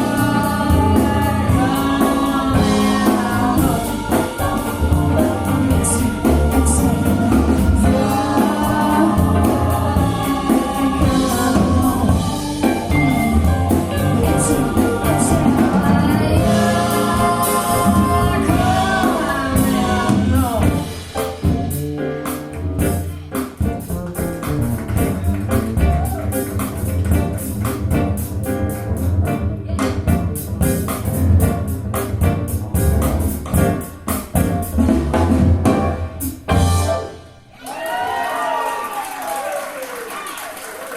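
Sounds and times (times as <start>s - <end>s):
singing: 0.0s - 20.9s
bass: 0.0s - 39.5s
drums: 0.0s - 40.9s.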